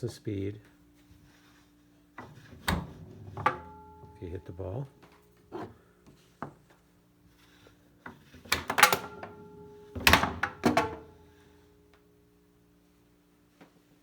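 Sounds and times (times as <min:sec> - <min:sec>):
foosball knocks: 0:02.2 - 0:04.5, 0:08.6 - 0:11.2
table ringing: 0:02.3 - 0:04.8, 0:08.8 - 0:11.4.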